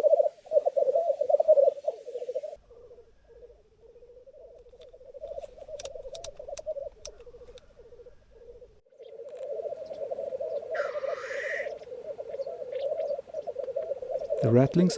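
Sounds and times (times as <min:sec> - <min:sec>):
grouse bubbling cooing chorus: 0:00.0 - 0:14.9
sharp clicks: 0:04.7 - 0:07.7.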